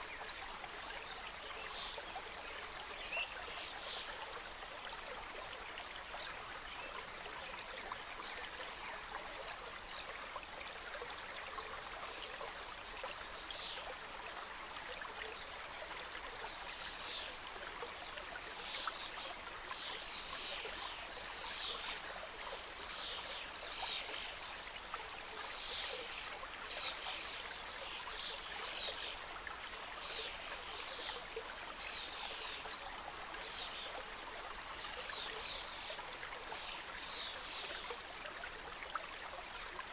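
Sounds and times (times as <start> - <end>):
mountain stream cascading: 12.1 - 39.9.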